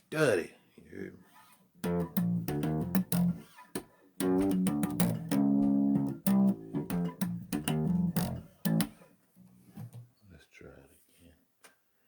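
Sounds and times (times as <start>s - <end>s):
bass guitar plucked notes: 1.8s - 3.5s, 4.2s - 8.9s.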